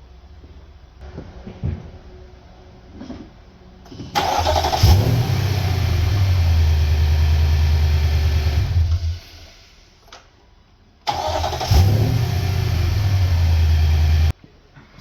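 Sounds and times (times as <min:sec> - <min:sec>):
starter motor cranking: 0:04.1 - 0:06.2, 0:11.1 - 0:14.3
car engine running: 0:11.7 - 0:14.3.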